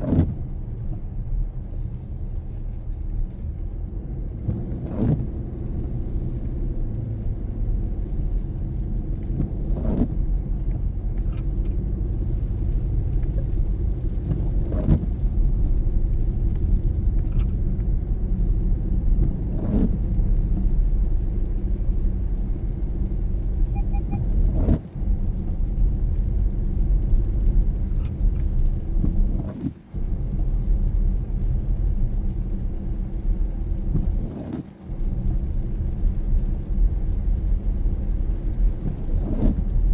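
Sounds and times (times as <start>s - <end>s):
windshield wipers swishing: 0.0s - 1.0s.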